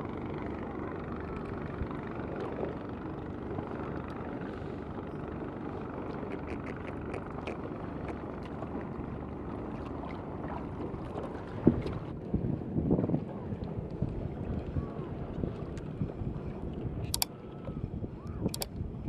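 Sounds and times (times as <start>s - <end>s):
sea water washing: 5.6s - 12.2s
wind on microphone: 10.7s - 19.0s
faint clicks: 17.1s - 18.8s.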